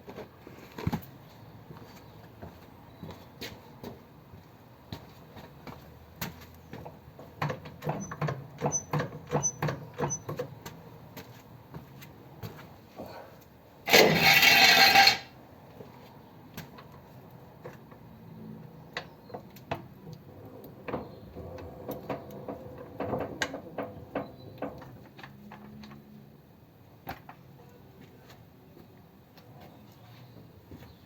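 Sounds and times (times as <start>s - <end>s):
hand tools clicking and knocking: 6.8s - 10.6s, 13.9s - 15.3s.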